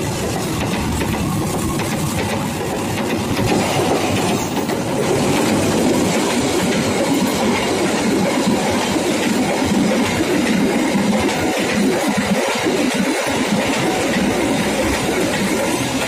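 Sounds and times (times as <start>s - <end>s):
train coaches rushing past: 0.0s - 16.0s.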